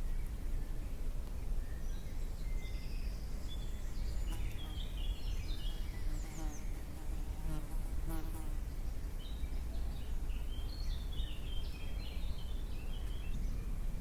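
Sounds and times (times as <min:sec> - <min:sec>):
songbirds whistling and chirping: 0:00.0 - 0:06.8, 0:08.8 - 0:14.0
steady low rumble: 0:12.2 - 0:14.0.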